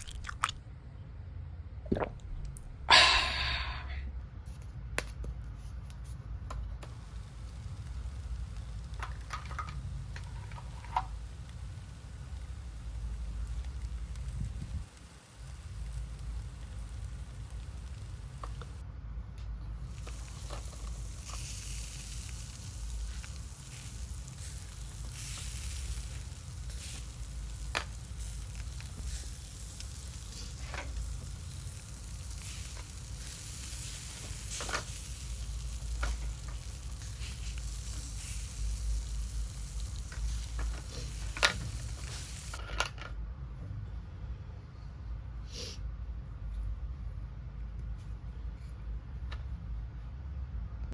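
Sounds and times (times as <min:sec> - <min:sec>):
frying sizzle: 0:06.8 - 0:18.8, 0:19.7 - 0:42.6.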